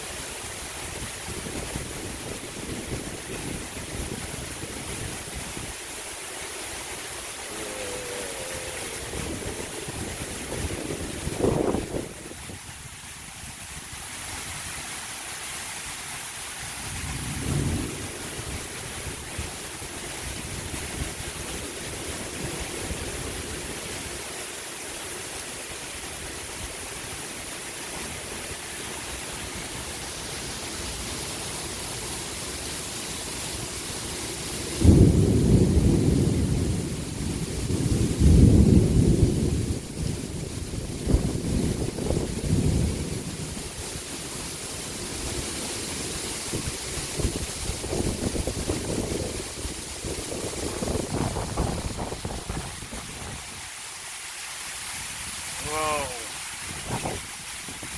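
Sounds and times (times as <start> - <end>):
steady rain falling: 0.0 - 57.9
thunder rumbling: 7.2 - 12.4, 16.9 - 23.6, 34.8 - 43.8, 46.5 - 53.4.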